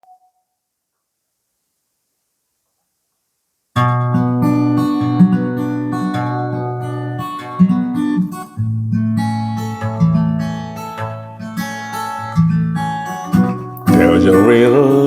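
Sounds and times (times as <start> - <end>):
acoustic guitar chords: 3.8 - 15.0.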